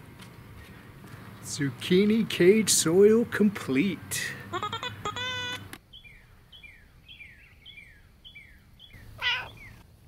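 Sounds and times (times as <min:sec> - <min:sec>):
songbird calling: 0:04.4 - 0:09.9.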